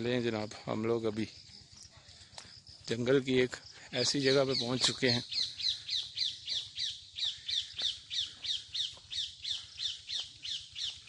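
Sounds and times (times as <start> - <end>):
bird calling: 3.8 - 11.0.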